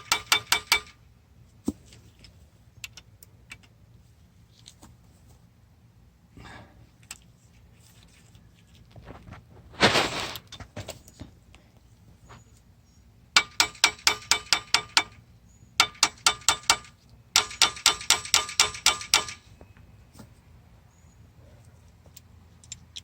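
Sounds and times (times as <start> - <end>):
ratchet wrench clicking: 0.0 - 1.0, 15.8 - 19.4.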